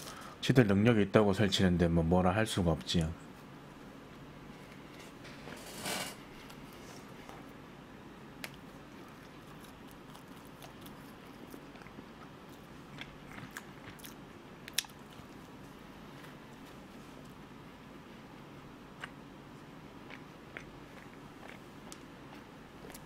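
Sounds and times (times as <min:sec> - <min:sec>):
quiet chewing: 0:08.4 - 0:17.4, 0:18.9 - 0:23.0.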